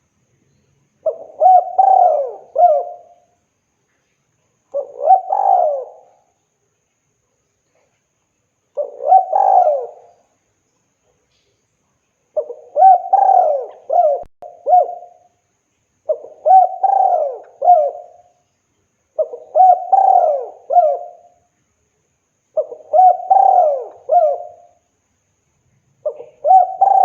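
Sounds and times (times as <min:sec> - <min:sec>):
dove cooing: 0:01.0 - 0:03.3, 0:04.8 - 0:06.3, 0:08.8 - 0:10.2, 0:12.4 - 0:15.2, 0:16.1 - 0:18.3, 0:19.2 - 0:21.3, 0:22.6 - 0:24.8, 0:26.0 - 0:27.0.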